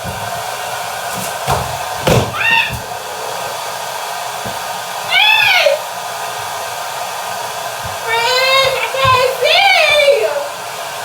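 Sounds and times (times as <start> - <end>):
hair dryer running: 0.0 - 11.0
high-pitched cries: 2.3 - 2.9, 5.1 - 5.8.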